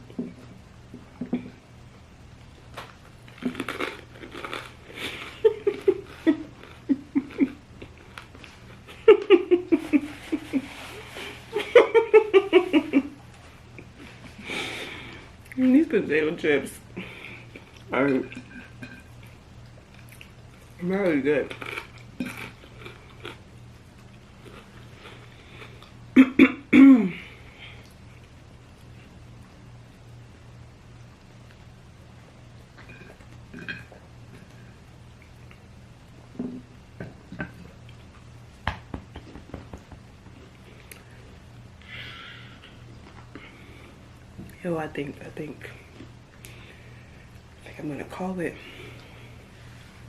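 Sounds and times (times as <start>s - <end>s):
woman crunching potato chips: 2.8s - 8.9s, 21.4s - 23.5s
woman clearing her throat: 26.2s - 27.2s
woman coughing: 26.2s - 27.2s.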